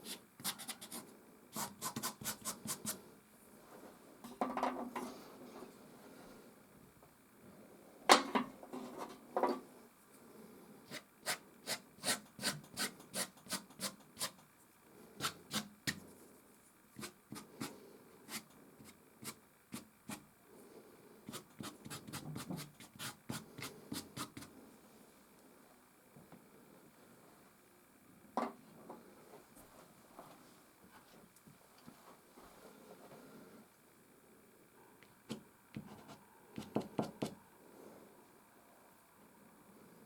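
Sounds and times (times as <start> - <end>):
pastel stick scratching on canvas: 0.0 - 1.0, 1.6 - 3.0, 21.3 - 24.5.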